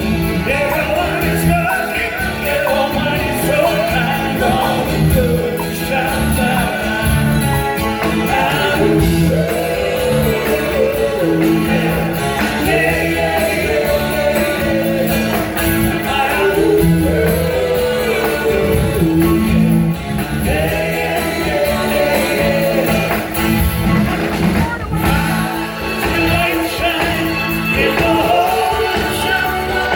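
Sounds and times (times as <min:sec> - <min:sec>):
live rock band playing: 0:00.0 - 0:29.9.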